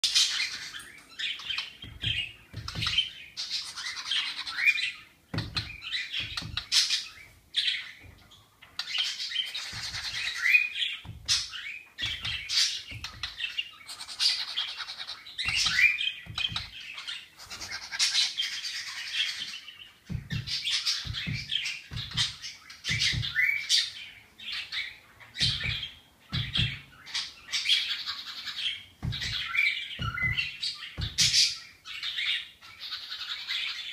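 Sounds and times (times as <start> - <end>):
small bird chirping and squawking: 0.0 - 33.9
low thumps: 15.4 - 16.8, 20.1 - 23.4, 25.4 - 27.0, 28.9 - 31.4.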